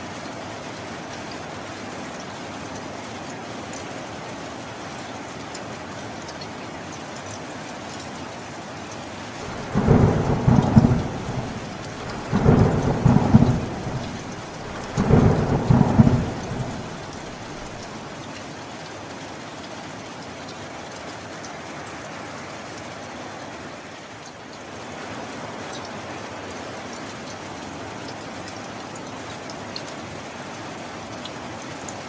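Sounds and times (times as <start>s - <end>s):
heavy rain: 0.0s - 32.0s
thunder rolling: 9.4s - 17.9s.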